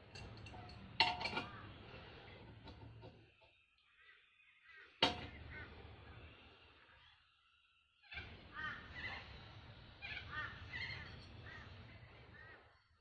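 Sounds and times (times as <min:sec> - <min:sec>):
bird calling: 0:08.0 - 0:12.8.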